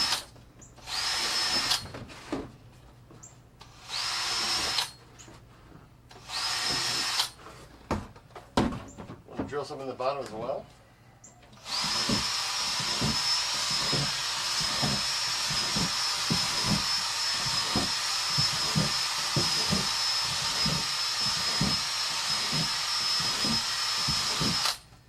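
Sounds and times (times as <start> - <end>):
electric drill drilling plastic: 0.0 - 0.3, 0.9 - 1.9, 3.7 - 5.0, 6.1 - 7.4, 11.6 - 24.9.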